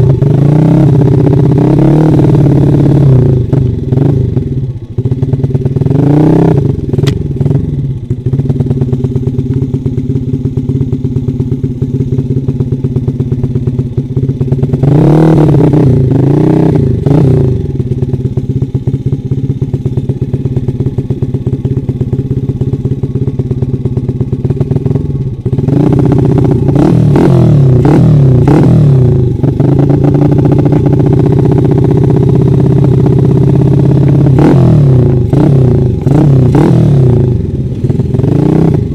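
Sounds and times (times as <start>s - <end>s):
dirt bike engine revving: 0.0s - 4.4s, 5.8s - 7.2s, 14.7s - 17.8s, 24.8s - 38.9s.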